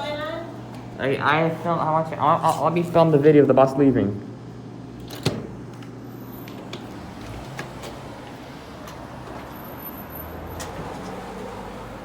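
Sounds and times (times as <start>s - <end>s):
vehicle engine humming: 4.4s - 12.0s.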